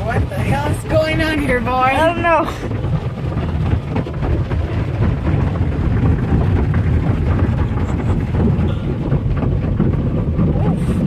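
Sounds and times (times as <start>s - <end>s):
car wash machinery rumbling: 0.0s - 11.0s.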